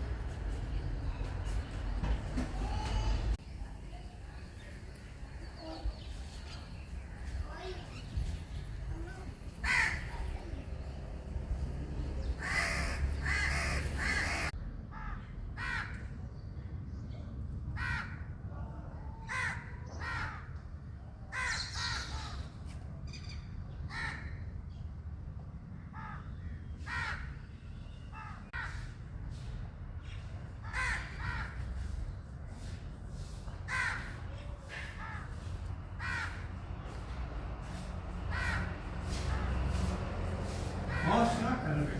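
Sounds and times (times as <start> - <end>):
crow cawing: 9.6 - 10.4, 12.4 - 16.1, 17.8 - 18.3, 19.2 - 20.5, 21.3 - 22.4, 23.9 - 24.4, 25.9 - 27.4, 30.6 - 31.6, 33.7 - 36.6, 38.3 - 39.5, 40.9 - 41.4.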